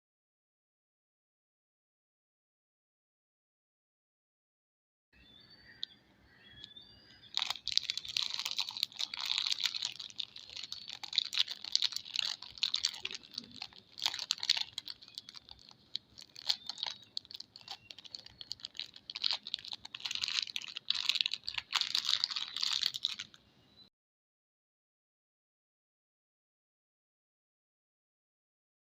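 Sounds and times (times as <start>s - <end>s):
packaging crinkling: 7.3s - 23.4s.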